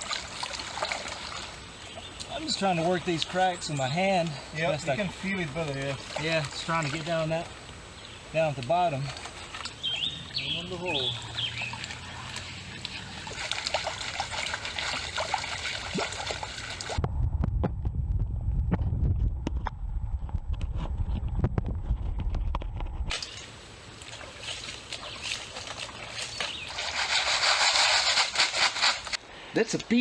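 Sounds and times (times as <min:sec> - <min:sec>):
gravel worked by hand: 0:00.0 - 0:16.8, 0:23.0 - 0:29.2
river water sloshing and splashing: 0:00.0 - 0:17.0, 0:23.1 - 0:29.2
muffled low rumble: 0:16.9 - 0:23.1.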